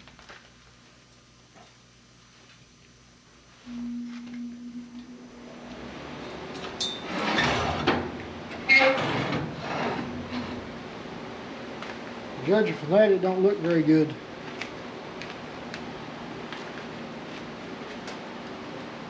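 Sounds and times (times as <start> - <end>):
steady hum: 0.0 - 19.0
steel plate scraping and clanking: 6.2 - 10.8.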